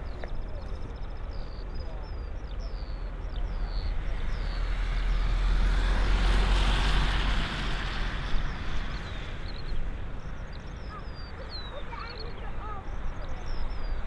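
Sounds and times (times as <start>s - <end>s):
wind rumble on microphone: 0.0s - 14.0s
jet airliner engines roaring: 3.9s - 13.3s.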